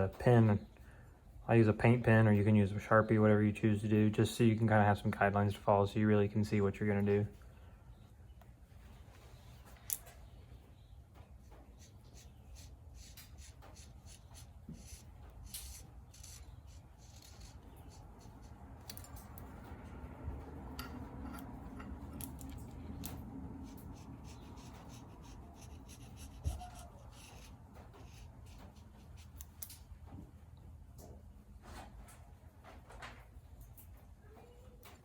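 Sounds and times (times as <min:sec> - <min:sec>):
low steady hum: 0:00.0 - 0:35.0
marker scratching on metal: 0:11.4 - 0:19.0, 0:22.9 - 0:29.7.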